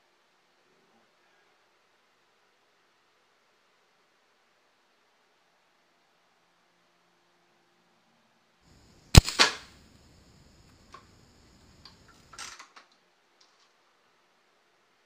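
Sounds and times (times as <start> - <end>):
air rifle shot crack: 9.1 - 10.0
rifle handling clicks and clatter: 9.2 - 9.7, 11.8 - 13.8.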